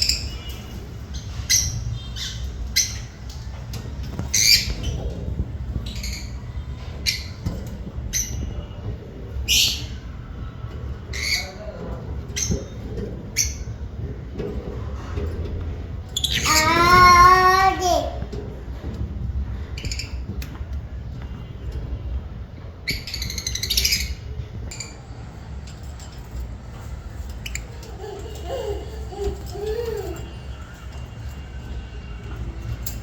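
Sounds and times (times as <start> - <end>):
lovebirds squawking: 16.2 - 18.0.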